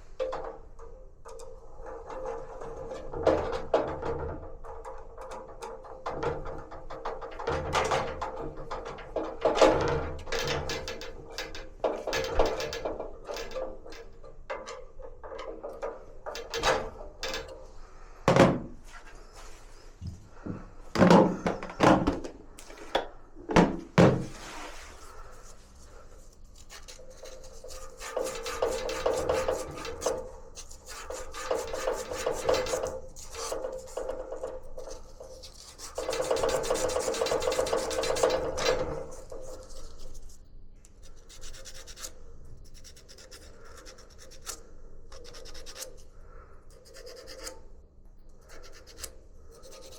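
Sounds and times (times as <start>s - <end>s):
sharp knocks on metal parts: 18.3s - 18.8s, 21.0s - 22.4s, 23.5s - 24.3s
rubbing and scrubbing: 23.6s - 40.4s.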